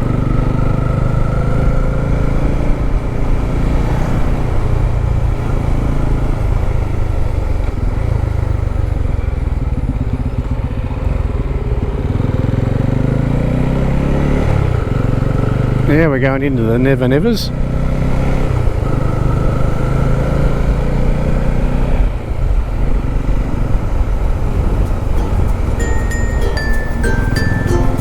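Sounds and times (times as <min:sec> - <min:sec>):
road noise: 0:00.0 - 0:28.0
motorcycle engine running: 0:06.7 - 0:13.7.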